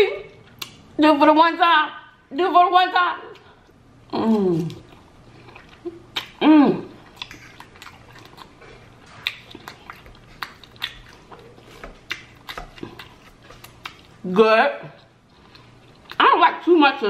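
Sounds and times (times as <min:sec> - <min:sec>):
crunchy chewing: 0:04.3 - 0:14.2, 0:14.9 - 0:16.2.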